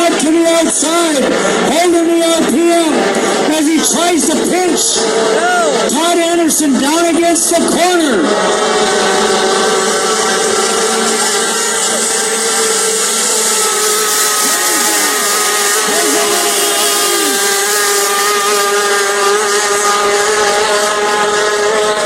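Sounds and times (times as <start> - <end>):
boat engines passing by: 0.0 - 22.0
powerboat engines droning: 0.0 - 22.0.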